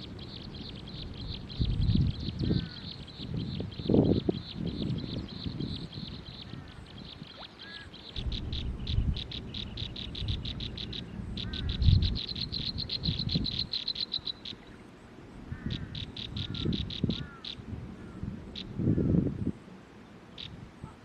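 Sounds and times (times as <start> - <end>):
nestling birds begging chirps: 0.0 - 14.8.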